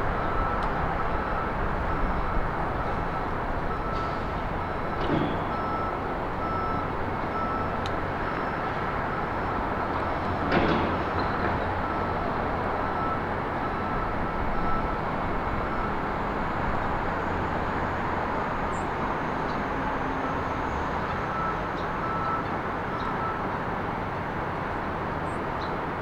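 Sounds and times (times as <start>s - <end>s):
road traffic noise: 0.0s - 26.0s
reversing alarm beeping: 0.1s - 10.0s, 11.2s - 16.1s, 20.2s - 23.6s.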